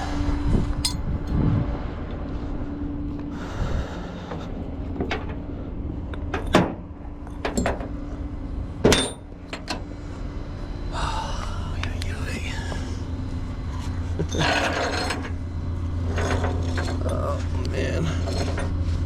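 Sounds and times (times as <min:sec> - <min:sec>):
metallic clanks of chains: 0:00.8 - 0:01.0, 0:07.3 - 0:07.8, 0:08.9 - 0:09.8, 0:14.2 - 0:15.4, 0:16.1 - 0:18.8.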